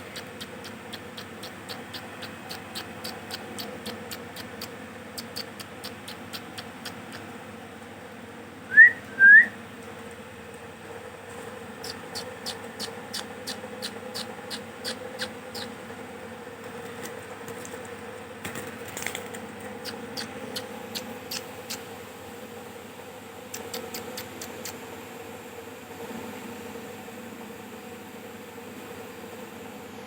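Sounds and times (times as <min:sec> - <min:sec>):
parakeets chirping: 0:00.0 - 0:07.3, 0:11.8 - 0:15.8, 0:19.7 - 0:21.9
steady low hum: 0:00.0 - 0:30.0.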